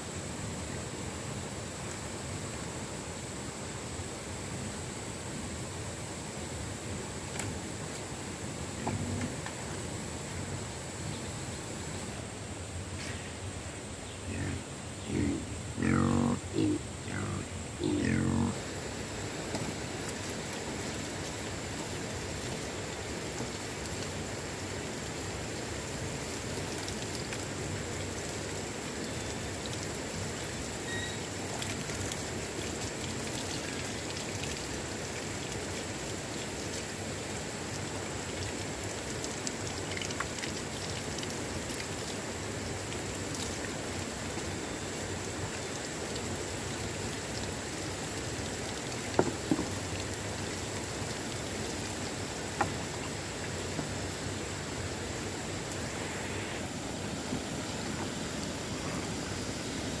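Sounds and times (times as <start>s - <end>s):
water hissing: 12.9s - 60.0s.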